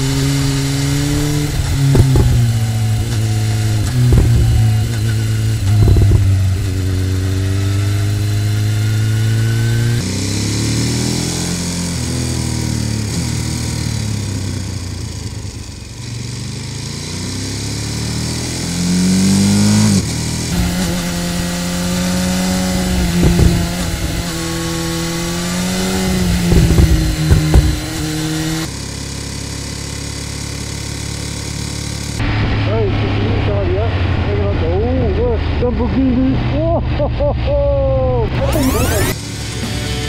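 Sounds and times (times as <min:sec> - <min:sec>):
motorcycle engine revving: 0:00.0 - 0:40.0
brief low thumps: 0:01.7 - 0:06.4, 0:23.1 - 0:23.8, 0:26.4 - 0:27.8.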